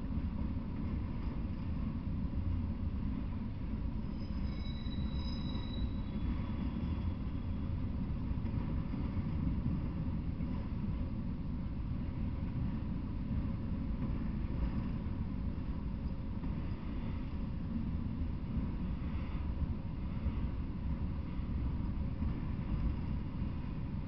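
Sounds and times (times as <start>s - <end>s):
thin high wheel squeal: 4.0s - 7.8s.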